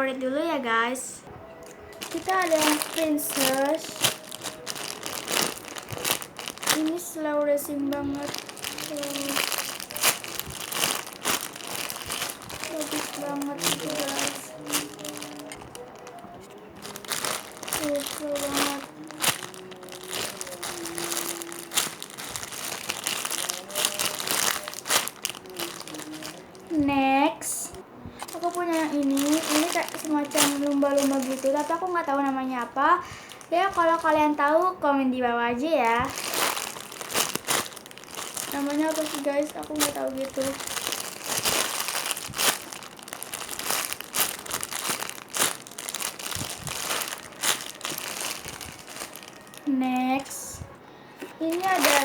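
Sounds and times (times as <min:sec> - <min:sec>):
plastic crinkling and rustling: 0:01.5 - 0:52.0.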